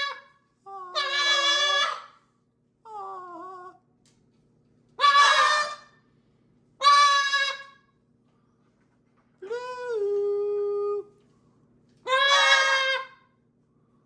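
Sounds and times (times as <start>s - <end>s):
parrots calling: 0.0s - 2.2s, 5.0s - 6.0s, 6.8s - 7.8s, 12.0s - 13.3s.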